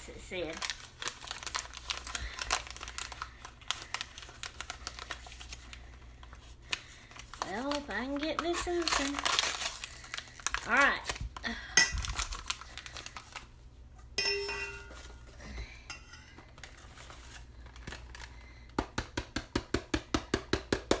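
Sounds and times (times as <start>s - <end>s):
package being opened: 0.5s - 13.5s
dishes clinking: 14.2s - 16.4s.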